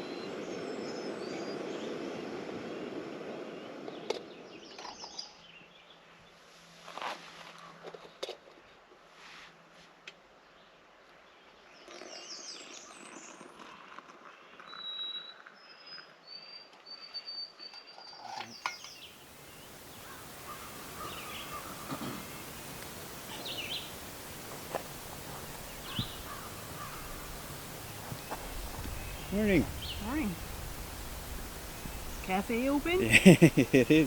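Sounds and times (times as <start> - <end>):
birds singing and chirping: 18.5 - 34.0
steady hiss: 18.5 - 34.0.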